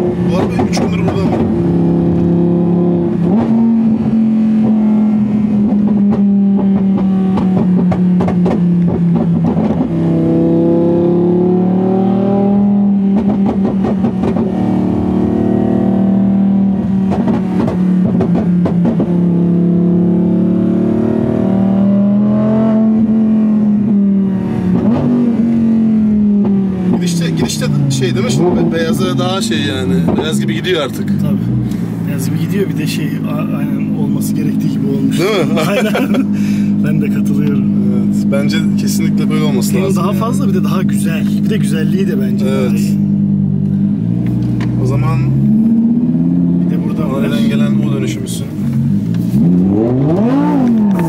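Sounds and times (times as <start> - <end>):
car engine droning: 0.0 - 51.0.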